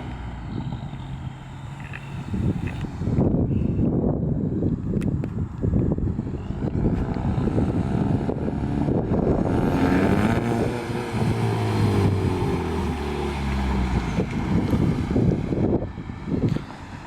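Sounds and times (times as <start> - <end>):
car exhaust engine revving: 6.6 - 16.7.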